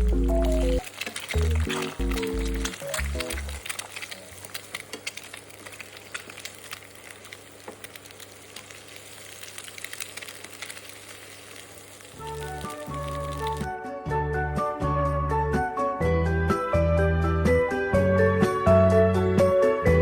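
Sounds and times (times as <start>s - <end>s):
background music: 0.0s - 0.8s, 12.2s - 20.0s
food sizzling in a pan: 0.0s - 13.7s.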